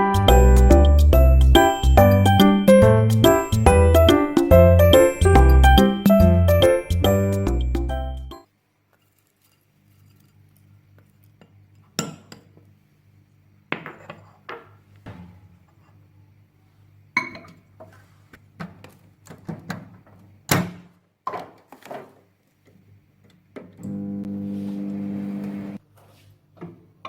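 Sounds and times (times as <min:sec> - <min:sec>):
faint steady hum: 0:23.8 - 0:25.8.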